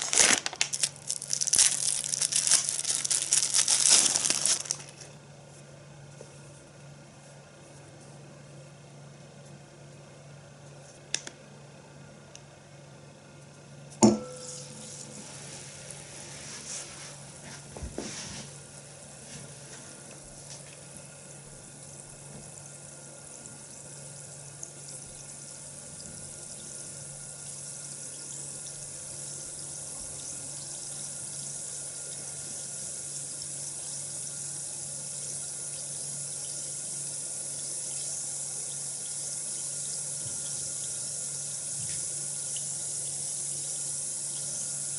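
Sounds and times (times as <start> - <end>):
tap water running into basin: 17.8 - 44.9.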